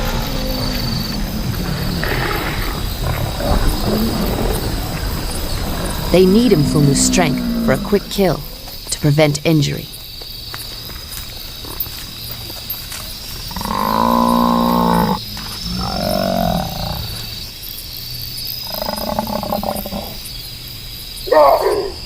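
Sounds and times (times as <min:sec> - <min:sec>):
large animal calling: 0:00.0 - 0:08.9, 0:13.5 - 0:17.4
night insects chorus: 0:00.0 - 0:22.0.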